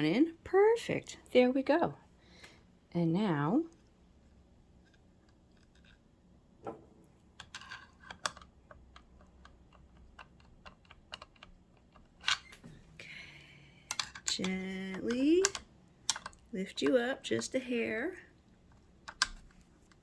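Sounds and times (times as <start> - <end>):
small metal parts clicking: 7.4 - 12.6, 13.8 - 17.6, 18.7 - 20.0.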